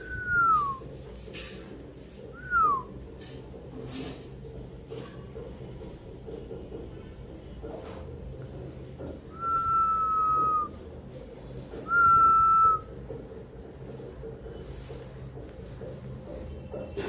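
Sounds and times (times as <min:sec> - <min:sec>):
person whistling long notes: 0:00.0 - 0:00.8, 0:02.4 - 0:02.9, 0:09.3 - 0:10.7, 0:11.8 - 0:12.9.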